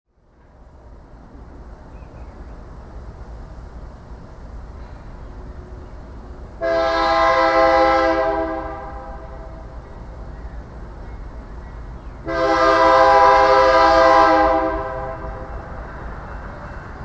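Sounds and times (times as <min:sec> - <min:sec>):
locomotive air horn chord: 0:06.6 - 0:09.7, 0:12.2 - 0:15.7.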